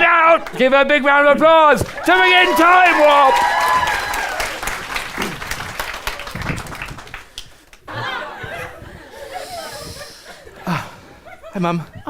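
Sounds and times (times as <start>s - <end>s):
audience applause: 1.8s - 8.8s
audience laughter: 7.9s - 12.0s.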